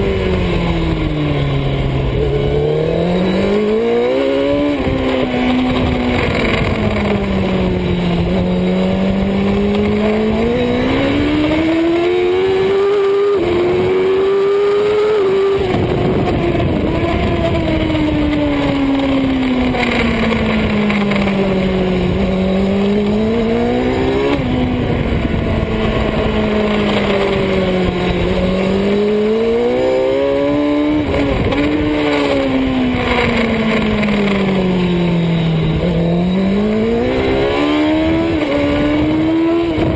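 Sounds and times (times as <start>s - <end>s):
superbike engine revving: 0.0s - 39.9s.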